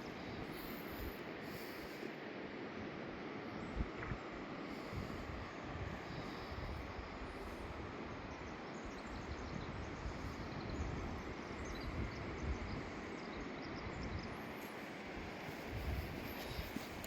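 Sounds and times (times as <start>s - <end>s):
wind buffeting microphone: 3.6s - 17.0s.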